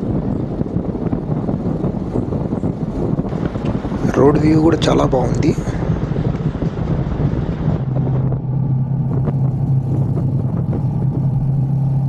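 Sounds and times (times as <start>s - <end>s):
road and wind noise: 0.0s - 12.0s
vehicle engine humming: 0.0s - 12.0s.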